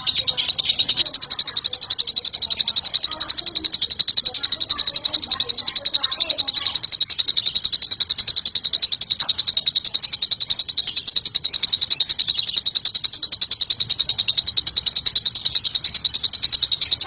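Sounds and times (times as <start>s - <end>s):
bird singing rapid trill: 0.0s - 17.0s.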